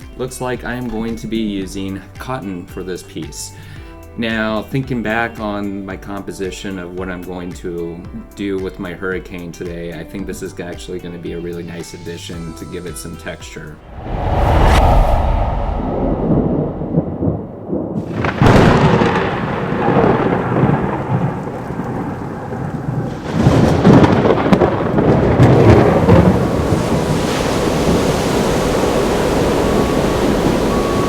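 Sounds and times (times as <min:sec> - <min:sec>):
rumbling thunder: 0:13.8 - 0:31.0
heavy rain: 0:18.0 - 0:31.0.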